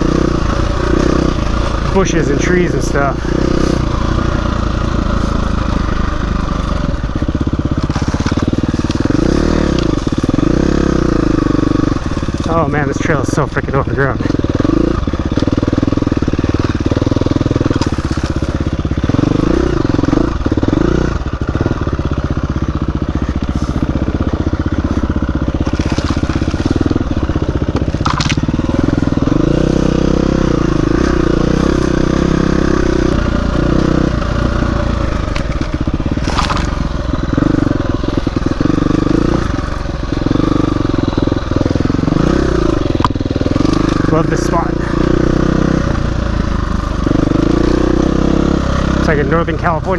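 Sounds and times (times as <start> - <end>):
branches scraping against bike: 0.0 - 49.9
dirt bike engine revving: 0.0 - 49.9.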